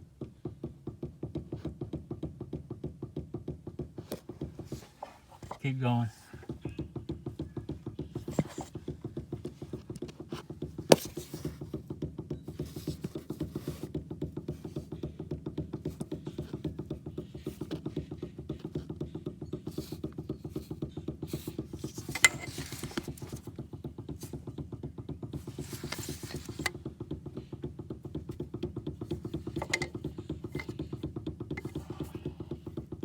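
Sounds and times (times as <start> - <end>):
steering rack clunking: 19.7 - 23.5, 25.4 - 26.8, 29.0 - 32.2.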